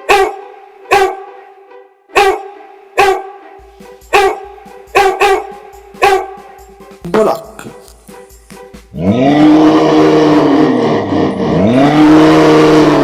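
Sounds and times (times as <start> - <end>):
dog barking: 0.0 - 1.3, 2.1 - 3.4, 4.1 - 6.4.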